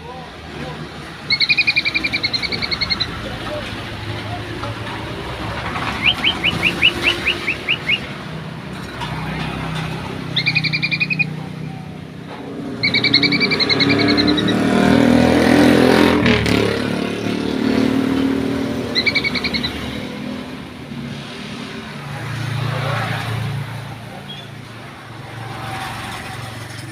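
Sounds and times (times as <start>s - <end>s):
vehicle engine rumbling past: 0.4s - 26.9s
bird chirping: 1.2s - 4.4s, 5.8s - 8.2s, 10.2s - 12.0s, 12.7s - 14.9s, 18.7s - 20.1s.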